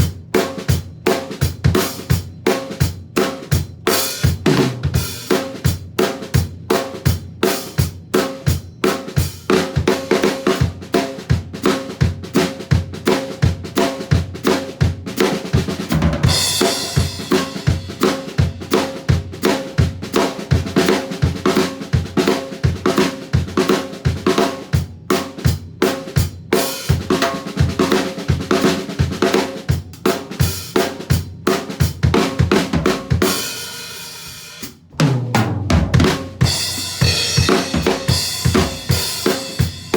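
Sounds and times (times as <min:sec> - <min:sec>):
drum kit playing swung groove: 0:00.0 - 0:39.9.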